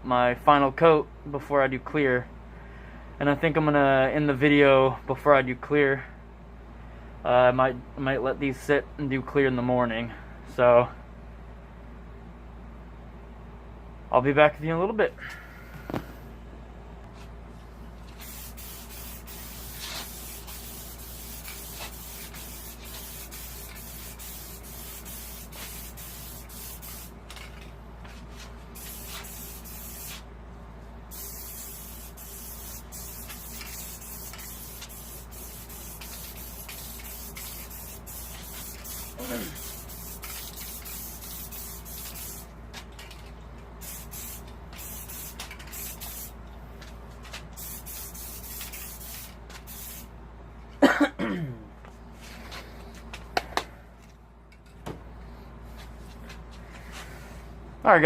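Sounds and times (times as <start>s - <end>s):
aerosol spray can hissing: 18.2s - 27.2s, 28.8s - 30.2s, 31.1s - 42.5s, 43.8s - 46.3s, 47.6s - 50.1s.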